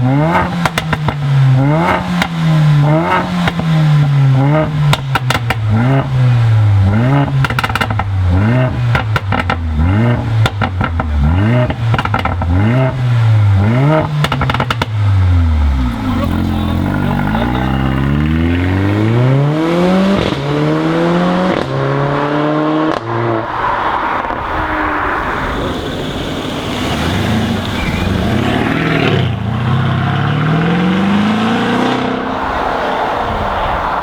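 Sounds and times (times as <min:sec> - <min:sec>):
car accelerating through gears: 0:00.0 - 0:34.0
car engine revving: 0:00.0 - 0:34.0
exhaust crackles and pops: 0:00.3 - 0:06.2, 0:06.8 - 0:13.0, 0:13.6 - 0:18.5.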